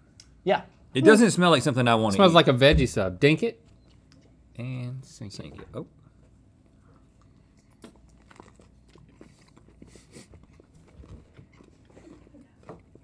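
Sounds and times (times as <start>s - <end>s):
biting and chewing sandwich: 6.2s - 13.0s.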